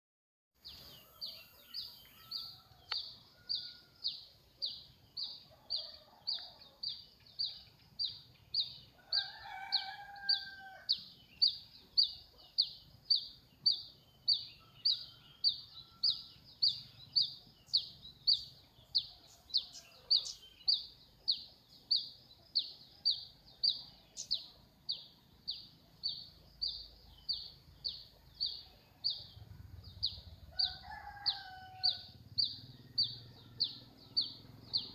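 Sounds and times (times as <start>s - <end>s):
rooster crowing: 0.9s - 4.1s, 5.4s - 6.9s, 9.0s - 11.0s, 30.5s - 34.9s.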